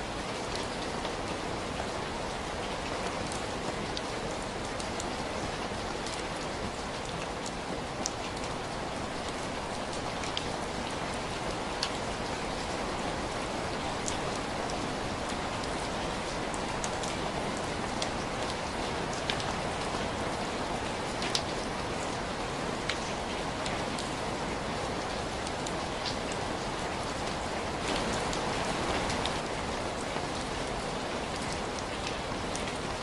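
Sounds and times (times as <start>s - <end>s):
steady rain hiss: 0.0s - 33.0s.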